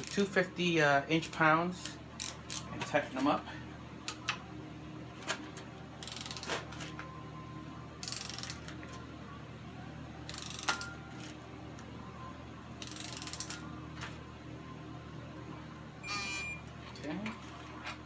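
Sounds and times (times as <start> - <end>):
torque wrench ratchet clicking: 6.0 - 6.5, 8.0 - 8.6, 10.3 - 10.9, 12.8 - 13.6.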